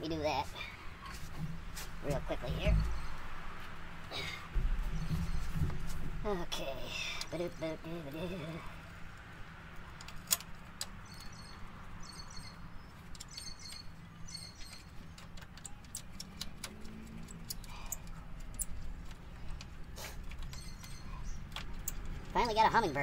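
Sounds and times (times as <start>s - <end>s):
bird chirping: 2.0s - 3.4s, 4.2s - 5.8s, 10.9s - 23.0s.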